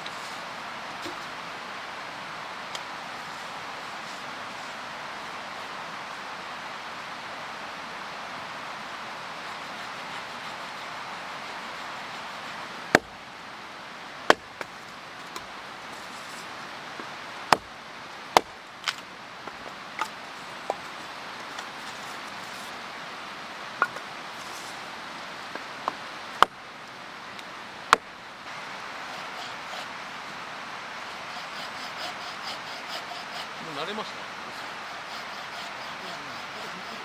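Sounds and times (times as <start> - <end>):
steady background hiss: 0.0 - 37.0.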